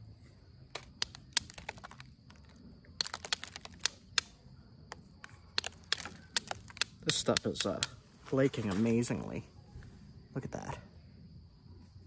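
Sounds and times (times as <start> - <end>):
stone flakes clicking off: 0.7 - 4.3, 5.6 - 8.0.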